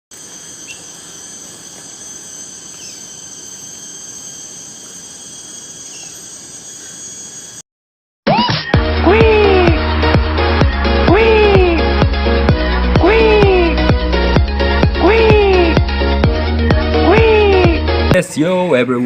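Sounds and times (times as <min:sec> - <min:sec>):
faint insect chirps: 0:00.1 - 0:07.6
high-pitched insect drone: 0:00.1 - 0:07.6
music: 0:08.3 - 0:19.0.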